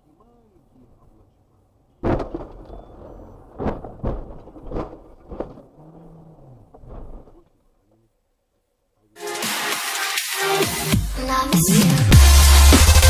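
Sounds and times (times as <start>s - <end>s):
vehicles crashing with heavy thumps: 2.0s - 5.8s.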